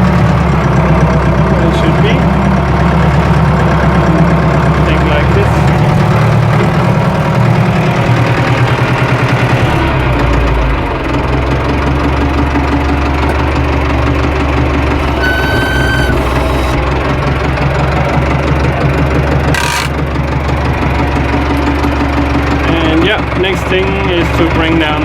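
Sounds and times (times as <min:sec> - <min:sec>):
tractor engine idling: 0:00.0 - 0:25.0
short high-pitched squeal: 0:15.0 - 0:17.0.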